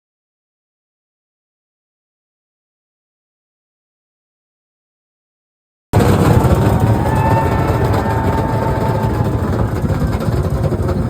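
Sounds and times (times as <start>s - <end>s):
vehicle engine running: 6.0s - 11.0s.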